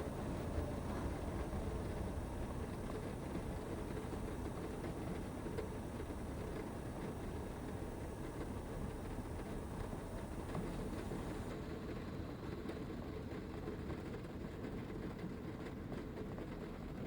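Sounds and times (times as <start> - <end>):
heavy rain on a van roof: 0.0 - 11.5.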